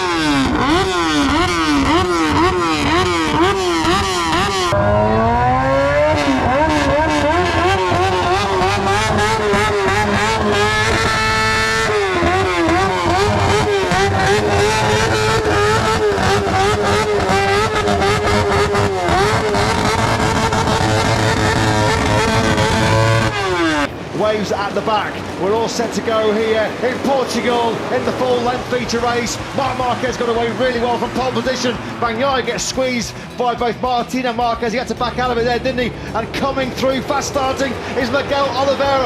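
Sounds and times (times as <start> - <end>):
racing motorcycle engines revving: 0.0 - 39.0.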